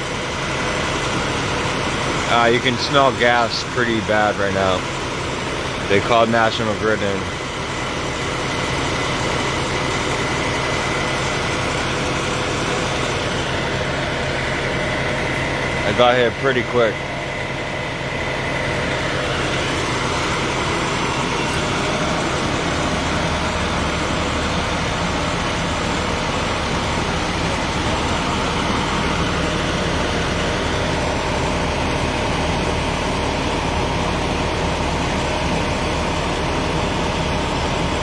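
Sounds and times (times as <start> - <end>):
large vehicle engine idling: 0.0 - 38.0.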